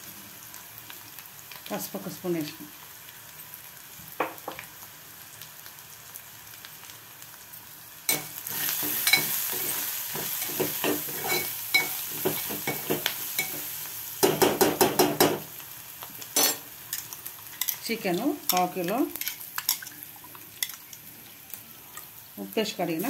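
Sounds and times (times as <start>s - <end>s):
onions frying in oil: 0.0s - 23.0s
metal spoon scraping a pot: 8.6s - 12.8s.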